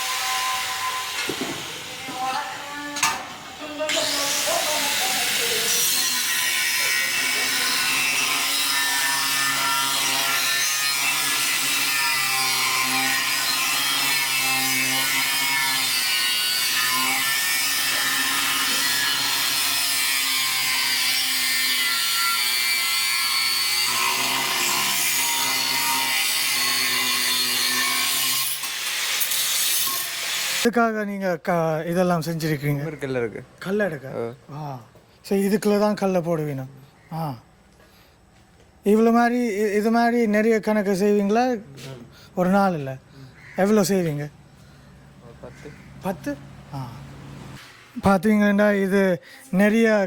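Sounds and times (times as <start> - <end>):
metalworking tool harsh hiss: 28.2 - 30.6.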